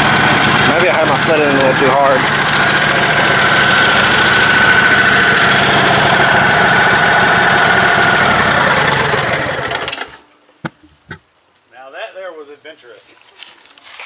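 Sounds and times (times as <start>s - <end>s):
riding mower engine idling: 0.0s - 10.8s.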